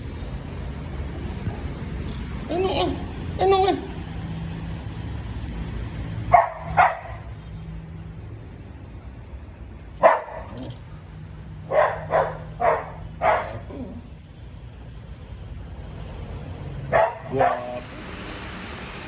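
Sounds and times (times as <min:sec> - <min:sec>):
steady low hum: 0:00.0 - 0:19.0
dog barking: 0:06.3 - 0:07.3, 0:10.0 - 0:10.7, 0:11.6 - 0:14.0, 0:16.9 - 0:17.8.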